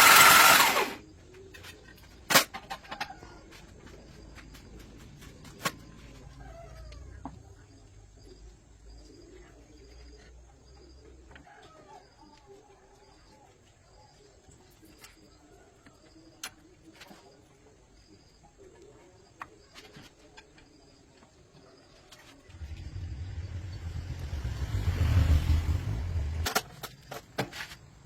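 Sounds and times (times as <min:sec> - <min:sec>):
low hum: 0:22.4 - 0:26.6.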